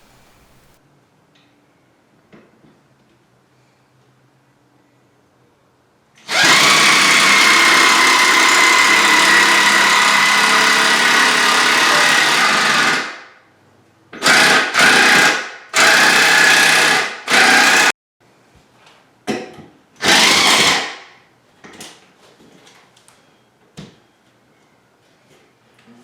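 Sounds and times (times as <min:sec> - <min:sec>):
power drill whining: 0:06.2 - 0:13.1, 0:14.2 - 0:17.9, 0:20.0 - 0:21.0.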